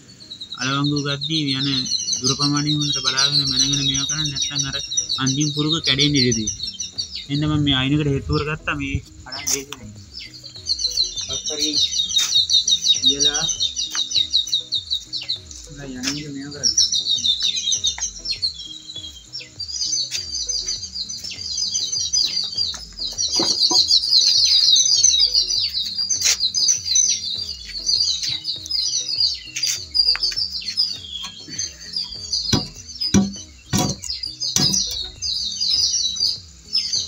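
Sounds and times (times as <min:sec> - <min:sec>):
small birds chirping: 0:00.0 - 0:37.0
sharp knocks: 0:32.5 - 0:35.0.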